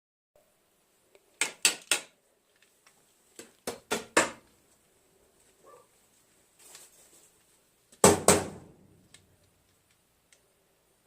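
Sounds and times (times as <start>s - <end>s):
sharp knocks in echoing room: 3.6s - 4.4s, 8.0s - 8.8s.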